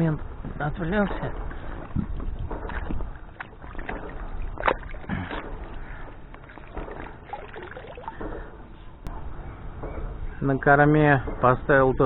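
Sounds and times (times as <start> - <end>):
water sloshing against boat hull: 0.0 - 9.1
knocks and clicks from boat: 0.4 - 9.2, 9.8 - 12.0.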